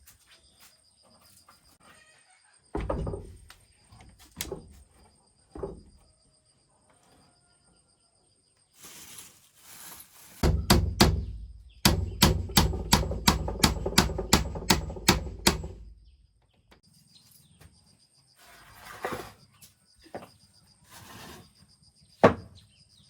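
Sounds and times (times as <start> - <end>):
fast hammer blows on wood: 10.4 - 15.8
hollow knocks on wood: 10.4 - 16.0.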